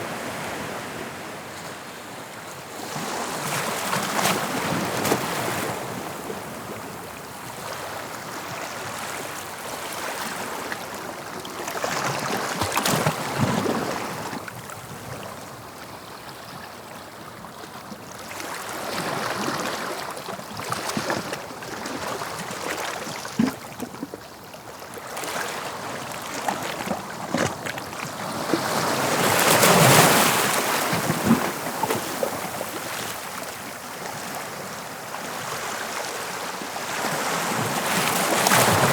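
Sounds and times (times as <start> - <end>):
sea waves breaking on shore: 18.2 - 38.9.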